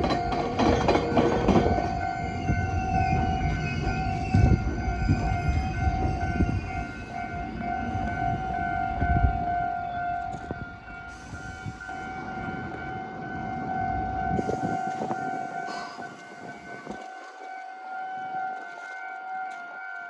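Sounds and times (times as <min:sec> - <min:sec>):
train rumbling over crossing: 0:00.0 - 0:18.6
level crossing warning bell: 0:00.0 - 0:20.0.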